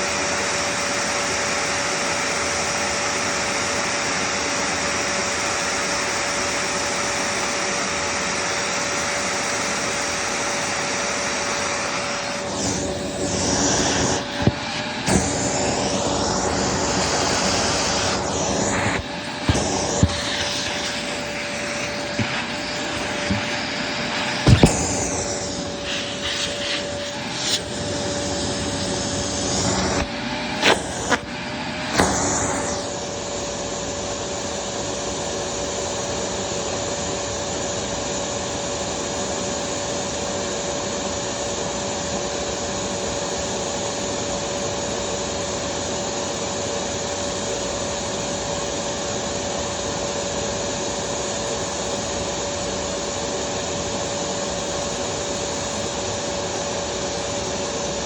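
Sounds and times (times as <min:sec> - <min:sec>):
vacuum cleaner humming: 0:00.0 - 0:58.0
vacuum knocking against things: 0:12.7 - 0:27.8.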